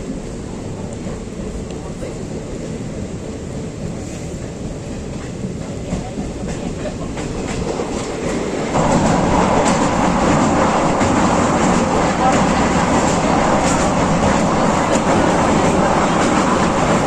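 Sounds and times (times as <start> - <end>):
train rumbling on track: 0.0 - 17.0
wheels clacking over rail joints: 5.9 - 17.0.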